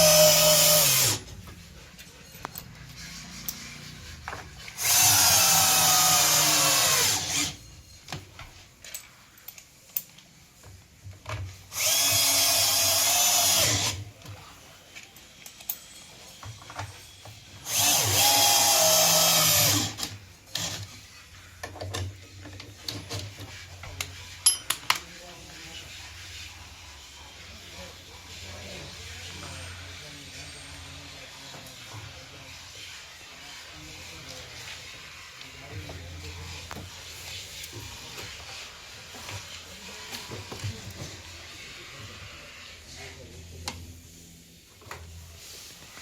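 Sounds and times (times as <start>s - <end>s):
electric drill driving screws: 0.0s - 1.3s, 4.8s - 7.6s, 11.7s - 14.1s, 17.6s - 20.9s.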